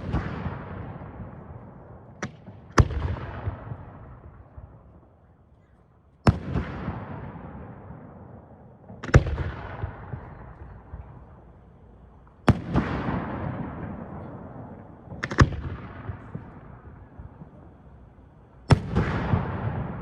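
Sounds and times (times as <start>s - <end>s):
fireworks bursting with echo: 0.0s - 5.4s, 6.2s - 20.0s.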